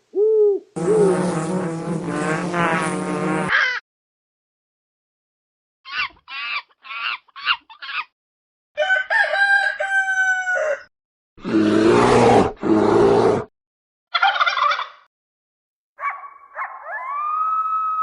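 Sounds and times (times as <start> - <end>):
rooster crowing: 8.8 - 10.9.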